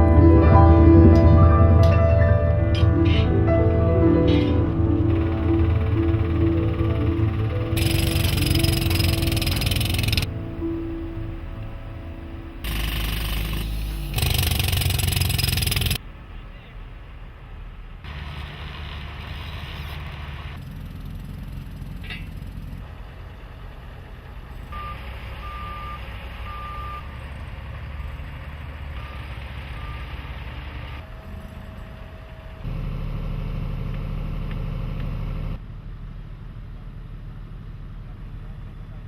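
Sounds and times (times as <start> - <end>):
construction vehicle engines rumbling: 0.0 - 39.0
reversing alarm beeping: 5.1 - 12.0, 12.6 - 16.0, 24.8 - 27.0, 29.0 - 31.4.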